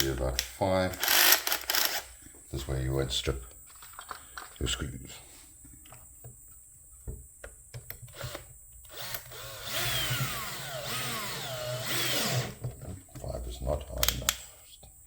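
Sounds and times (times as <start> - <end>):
power drill driving a screw: 1.0 - 2.0, 8.1 - 12.6.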